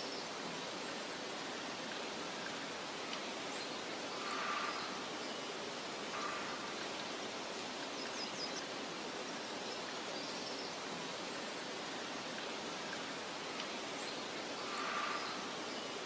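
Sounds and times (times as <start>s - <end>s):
soft steady hiss: 0.0s - 16.0s.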